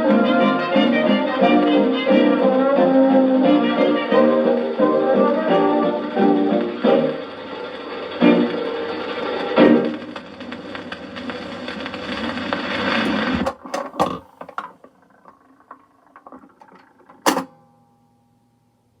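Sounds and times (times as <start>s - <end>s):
record player clicks and knocks: 11.2s - 17.7s.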